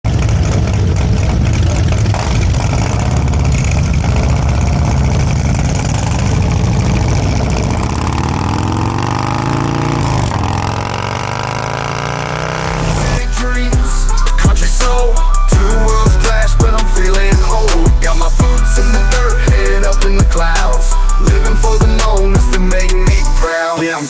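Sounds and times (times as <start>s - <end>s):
motorcycle engine revving: 0.0s - 23.4s.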